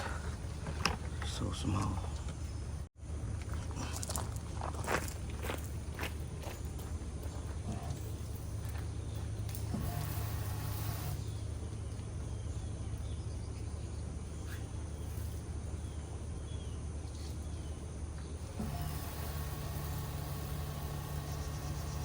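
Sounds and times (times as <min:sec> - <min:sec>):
low mechanical hum: 0:00.0 - 0:22.0
small birds chirping: 0:10.5 - 0:22.0.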